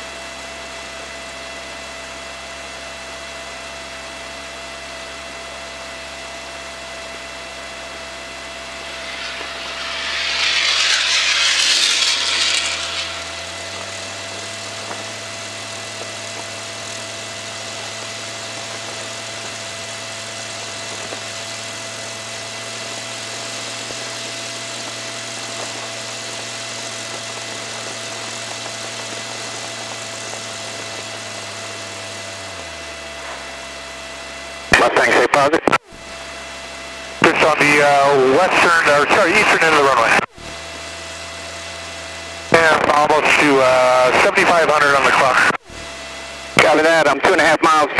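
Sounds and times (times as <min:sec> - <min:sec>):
aircraft engine droning: 0:05.6 - 0:47.9
loud hiss burst: 0:08.6 - 0:15.2.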